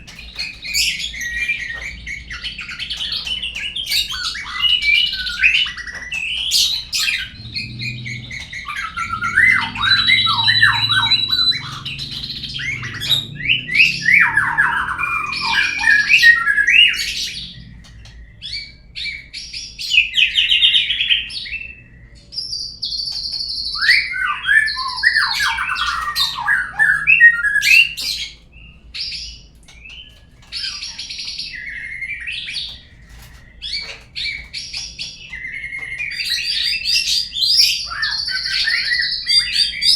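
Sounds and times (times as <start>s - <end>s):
songbird whistling phrases: 4.1s - 19.2s
held high bird whistle: 6.5s - 17.5s.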